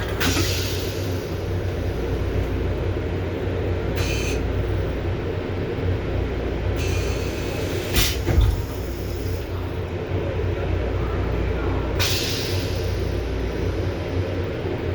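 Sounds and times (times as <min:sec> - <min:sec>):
train low rumble: 0:00.0 - 0:14.9
air hiss: 0:04.0 - 0:04.4, 0:06.8 - 0:09.4, 0:12.0 - 0:13.2.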